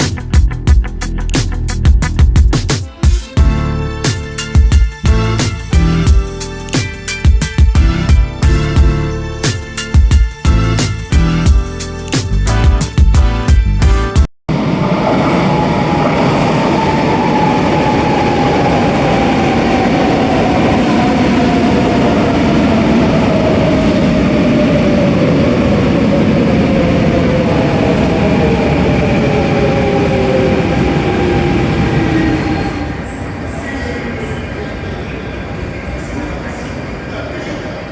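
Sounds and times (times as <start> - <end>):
train wheels rumbling on rails: 14.5 - 35.0.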